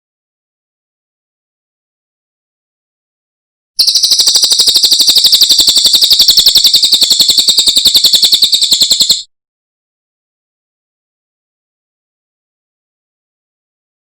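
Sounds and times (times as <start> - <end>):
songbird high-pitched trill: 3.8 - 9.3.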